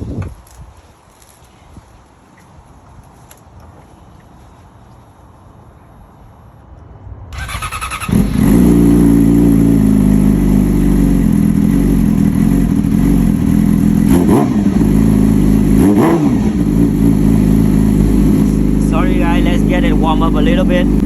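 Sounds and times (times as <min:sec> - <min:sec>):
motorcycle engine starting: 0:07.3 - 0:21.0
motorcycle engine idling loudly: 0:08.4 - 0:21.0.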